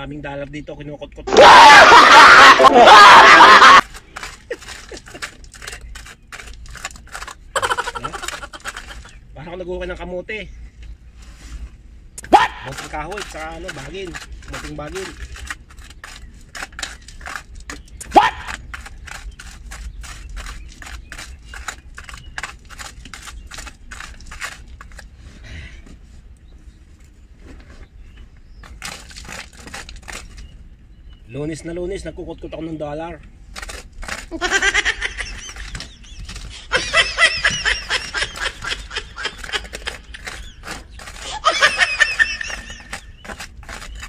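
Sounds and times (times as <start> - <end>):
person laughing: 1.3 - 3.8, 4.4 - 5.4, 7.6 - 9.1, 34.3 - 35.8, 36.5 - 43.0
hammer chipping concrete: 1.4 - 9.2, 12.2 - 25.0, 28.6 - 30.4, 33.5 - 44.0.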